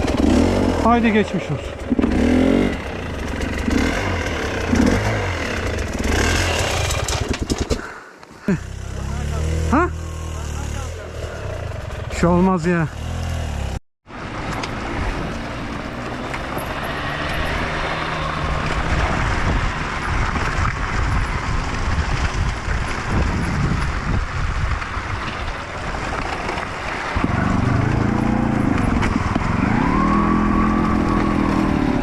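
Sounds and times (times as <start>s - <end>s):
dirt bike engine revving: 0.0s - 13.8s, 16.2s - 20.2s, 27.1s - 32.0s.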